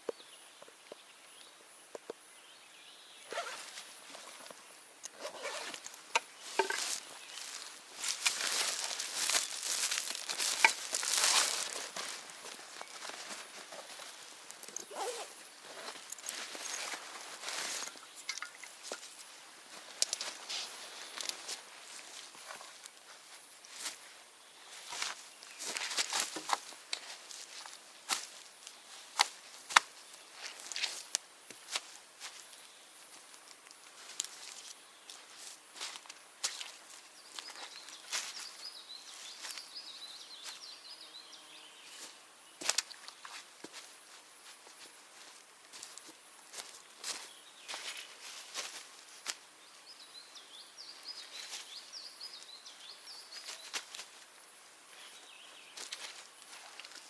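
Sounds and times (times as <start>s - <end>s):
rustling: 3.3s - 19.0s
footsteps scuffing on ground: 5.4s - 18.0s, 34.0s - 38.6s.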